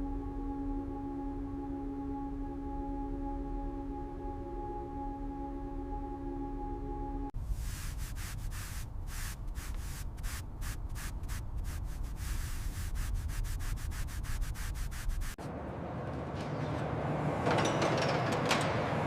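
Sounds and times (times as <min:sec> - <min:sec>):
rhythmic rubbing strokes: 0:07.5 - 0:15.4.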